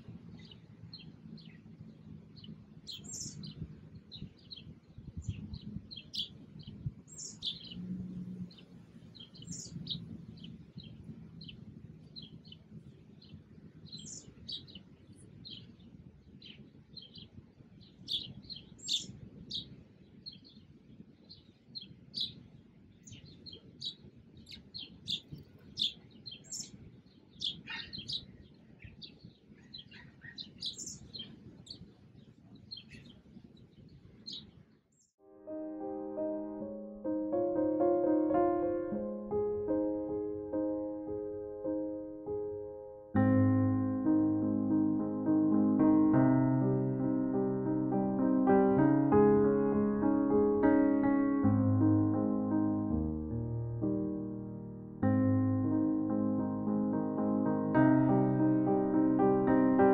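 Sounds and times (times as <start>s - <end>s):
small birds chirping: 0.0s - 35.2s.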